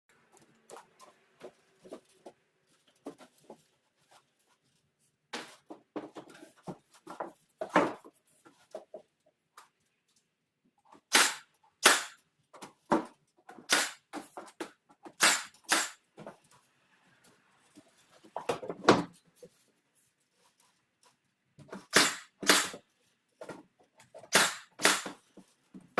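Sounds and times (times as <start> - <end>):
pneumatic nail gun firing: 11.1 - 12.2, 13.6 - 14.1, 15.2 - 16.0, 21.9 - 22.8, 24.3 - 25.2.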